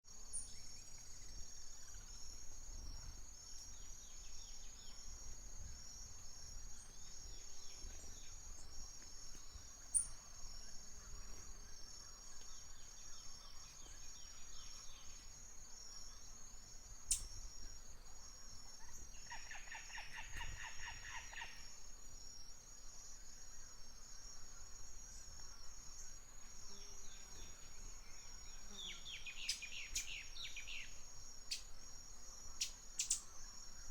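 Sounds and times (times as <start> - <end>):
high-pitched insect trill: 0.1 - 33.9
bird chirps: 18.8 - 21.6, 26.7 - 31.7, 32.6 - 33.4.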